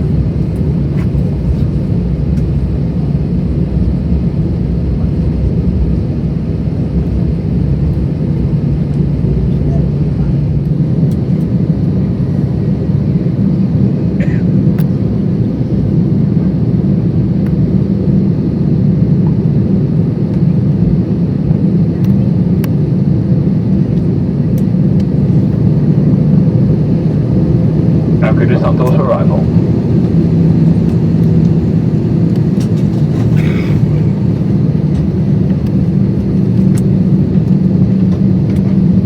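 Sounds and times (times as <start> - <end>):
low airplane cabin drone: 0.0 - 39.0.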